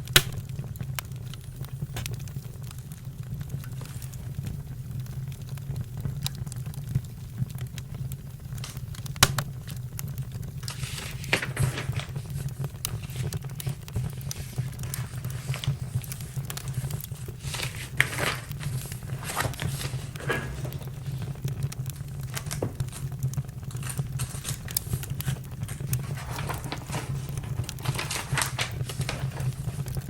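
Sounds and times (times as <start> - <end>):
campfire crackling and popping: 0.0 - 30.0
rustling: 10.5 - 30.0.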